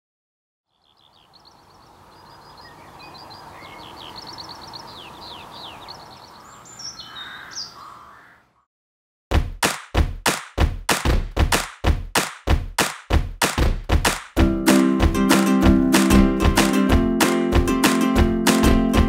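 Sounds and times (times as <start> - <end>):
songbirds chirping and trilling: 0.7 - 8.7
loud heavy thuds: 9.3 - 15.2.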